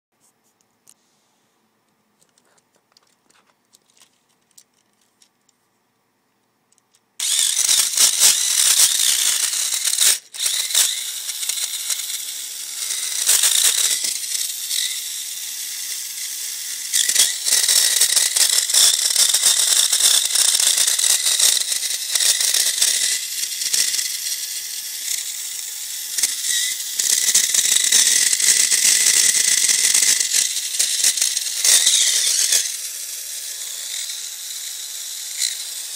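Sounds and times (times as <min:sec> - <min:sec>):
toy car motor whine: 0:07.2 - 0:35.9.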